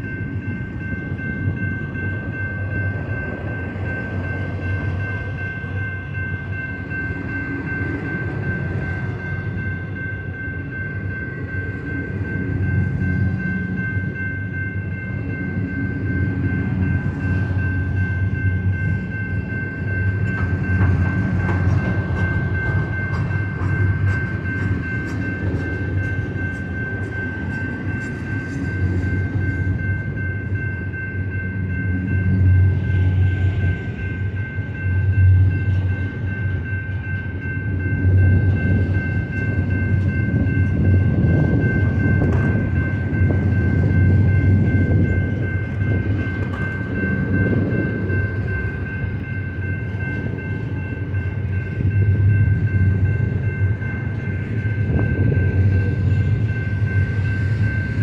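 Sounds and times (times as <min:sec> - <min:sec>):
railroad crossing bell ringing: 0:00.0 - 0:58.0
train wheels rumbling on rails: 0:00.0 - 0:58.0.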